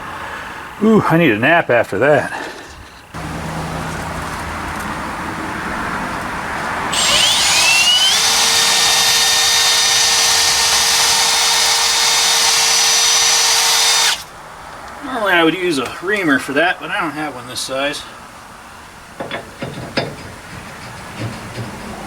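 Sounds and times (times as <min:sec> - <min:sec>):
electric drill whining: 0:06.9 - 0:14.3.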